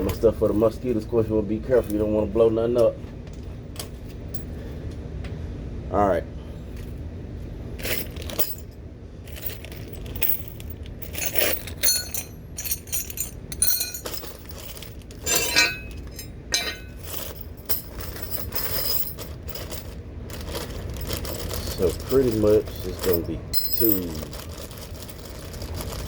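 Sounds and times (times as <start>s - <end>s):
steady low rumble: 7.1s - 25.6s
metal hardware clinking: 7.8s - 8.7s, 9.3s - 20.0s, 21.0s - 24.4s.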